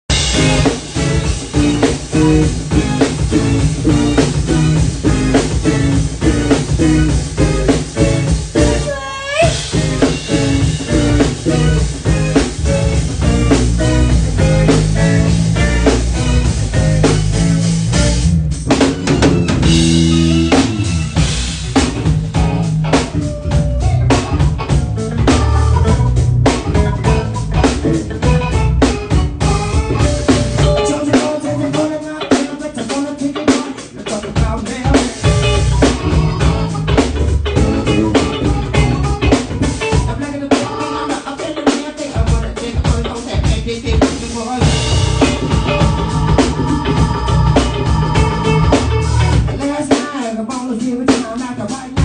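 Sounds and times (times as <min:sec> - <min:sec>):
drum kit beat: 0:00.0 - 0:52.0
live band playing: 0:00.0 - 0:52.0.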